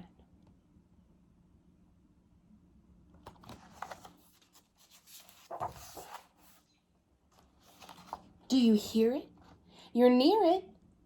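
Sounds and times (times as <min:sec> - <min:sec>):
paper page turning: 0:03.2 - 0:06.7, 0:07.3 - 0:08.4.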